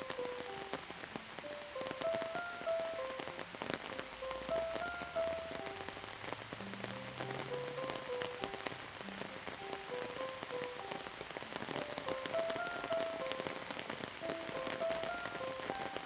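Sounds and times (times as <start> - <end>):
rain drops pattering: 0.0 - 16.0
slow soft melody: 0.0 - 16.0.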